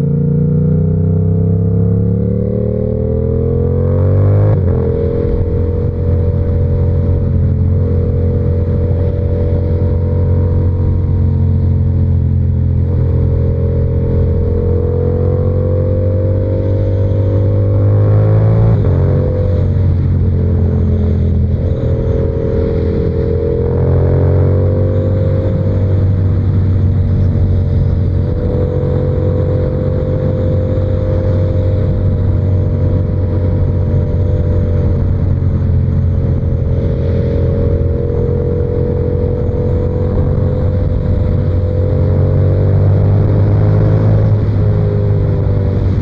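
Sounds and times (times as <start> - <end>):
motorcycle engine accelerating: 0.0 - 46.0.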